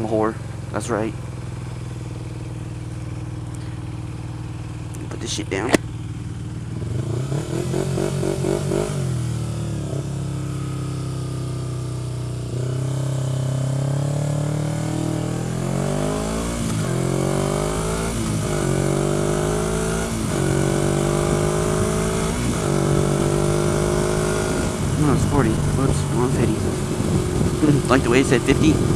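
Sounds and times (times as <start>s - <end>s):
motorcycle engine accelerating: 0.0s - 28.9s
wind rush: 24.4s - 28.9s.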